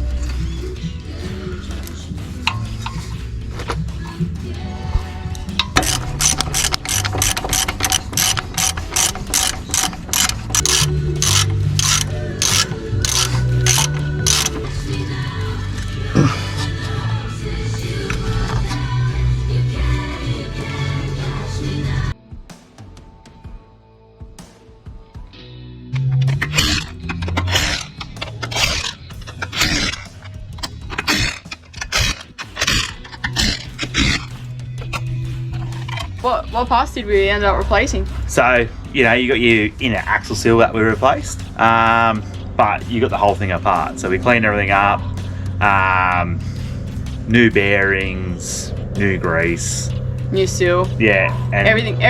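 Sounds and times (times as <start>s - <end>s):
faint background music: 0.0s - 52.0s
rough scraping strokes: 4.7s - 19.2s, 26.0s - 36.8s
ratchet wrench clicking: 5.4s - 15.1s, 26.0s - 36.2s.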